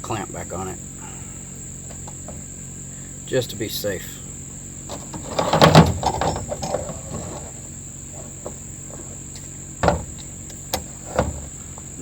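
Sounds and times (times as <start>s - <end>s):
metal clamp clattering: 4.9s - 11.6s.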